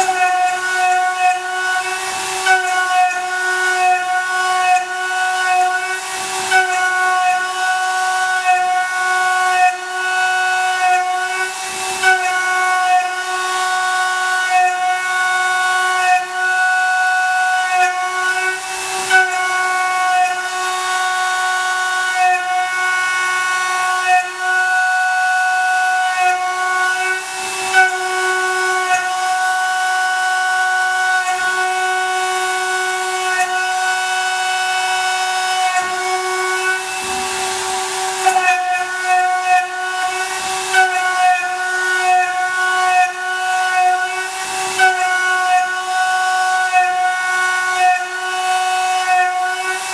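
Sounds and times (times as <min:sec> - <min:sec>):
milling machine cutting whine: 0:00.0 - 0:49.9.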